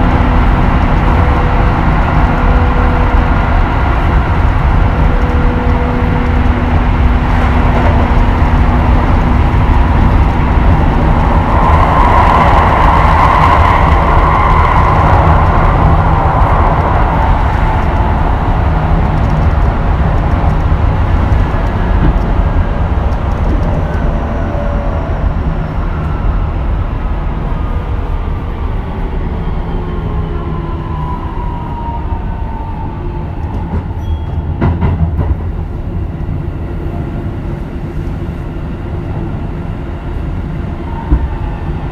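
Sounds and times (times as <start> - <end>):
train motor whine: 0.0 - 26.3
electric train running on rails: 0.0 - 41.9.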